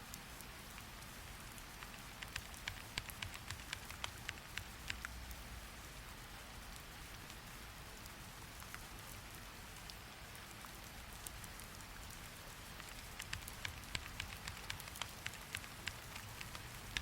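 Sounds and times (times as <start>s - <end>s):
rain hissing: 0.0s - 17.0s
typing on a computer keyboard: 1.8s - 5.2s, 12.8s - 17.0s.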